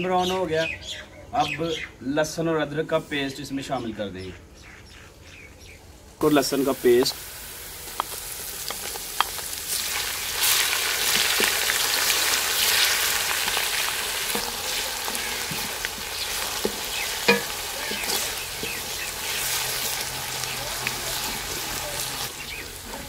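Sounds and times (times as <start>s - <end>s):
paste sizzling in hot oil: 6.2s - 23.0s
wooden spatula knocking on a pan: 16.6s - 18.8s.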